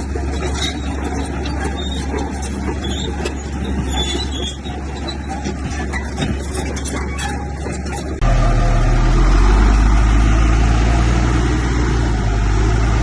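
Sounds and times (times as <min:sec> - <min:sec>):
diesel machinery engine drone: 0:00.0 - 0:13.0
short high squeaks: 0:00.4 - 0:08.2.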